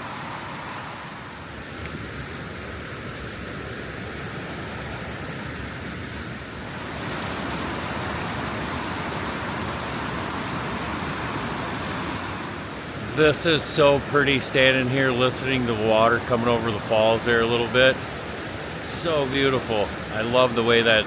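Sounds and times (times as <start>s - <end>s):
water rushing over waterfalls: 0.0s - 21.0s.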